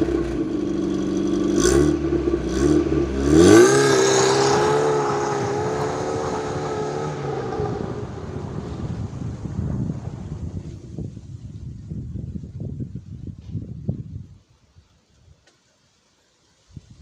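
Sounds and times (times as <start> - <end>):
car engine revving: 0.0 - 10.8.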